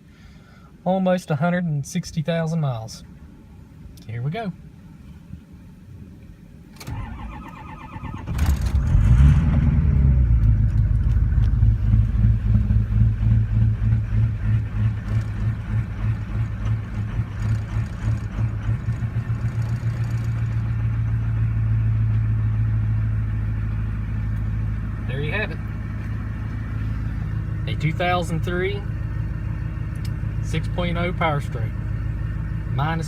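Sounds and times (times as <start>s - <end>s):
diesel engine starting and idling: 6.5s - 33.0s
starter cranking: 6.8s - 9.0s, 14.9s - 20.7s.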